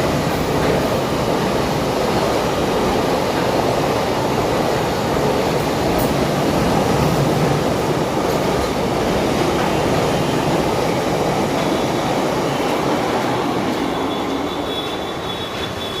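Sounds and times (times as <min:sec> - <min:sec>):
train wagons rumbling on rails: 0:00.0 - 0:16.0
high wheel squeal: 0:13.8 - 0:16.0.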